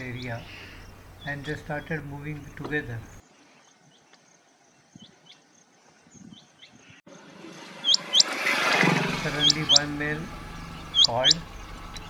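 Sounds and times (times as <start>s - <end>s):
faint bird chirps: 0.0s - 7.0s, 7.8s - 8.3s, 9.2s - 12.0s
quail whistled call: 7.8s - 8.4s, 9.2s - 9.9s, 10.5s - 12.0s.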